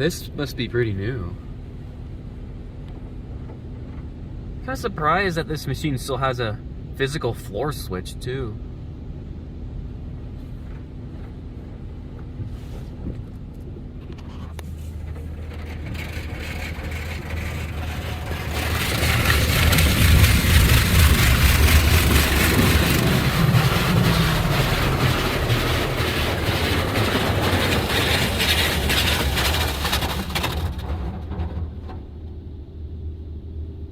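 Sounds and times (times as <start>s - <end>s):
car wash machine hum: 0.0s - 33.9s
high-pressure water spray on car: 14.8s - 30.7s.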